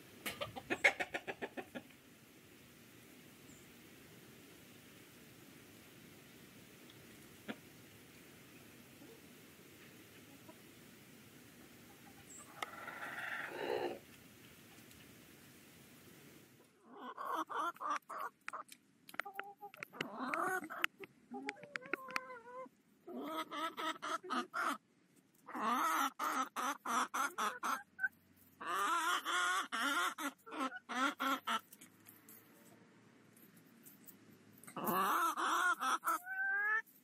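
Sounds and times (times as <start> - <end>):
hens clucking: 0.2 - 2.1, 7.4 - 7.7, 8.9 - 10.8, 11.6 - 15.1, 16.6 - 24.8, 25.4 - 31.8, 34.6 - 36.9.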